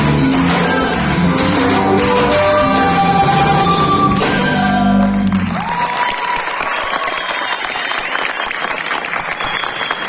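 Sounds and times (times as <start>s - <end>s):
whistle or cheer: 3.3s - 8.6s, 9.2s - 10.0s
audience applauding: 4.8s - 10.0s.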